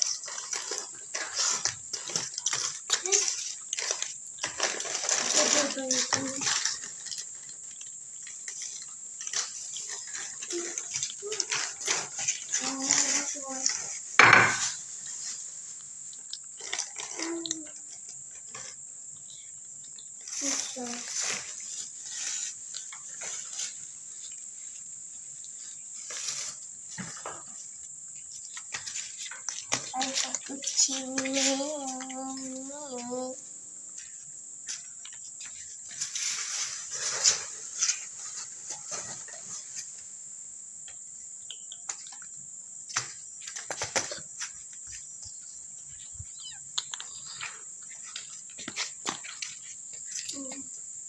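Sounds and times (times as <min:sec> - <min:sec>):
crickets chirring: 0:00.0 - 0:51.0
close rustles and knocks: 0:08.5 - 0:15.6.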